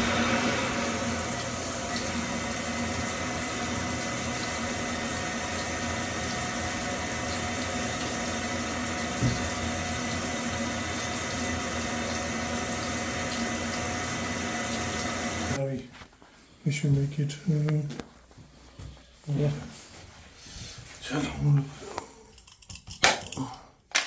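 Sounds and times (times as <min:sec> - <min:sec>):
water running from a tap: 0:00.0 - 0:15.6.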